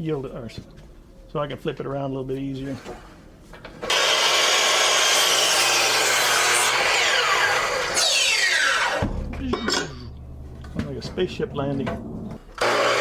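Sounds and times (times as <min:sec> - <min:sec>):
miter saw cutting wood: 0:03.8 - 0:09.0, 0:12.6 - 0:13.0
saw blade winding down: 0:03.9 - 0:09.0, 0:12.6 - 0:13.0.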